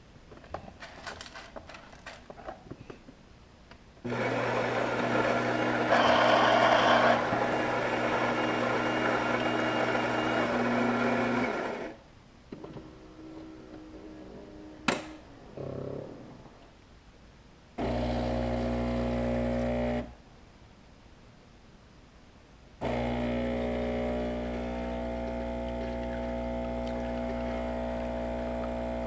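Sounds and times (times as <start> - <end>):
coffee grinder running: 4.1 - 12.0, 22.8 - 28.7.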